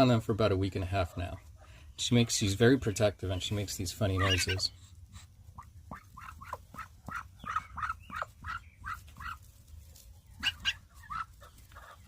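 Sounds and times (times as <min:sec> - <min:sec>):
duck making short chirping calls: 0:04.1 - 0:09.4, 0:10.4 - 0:12.0.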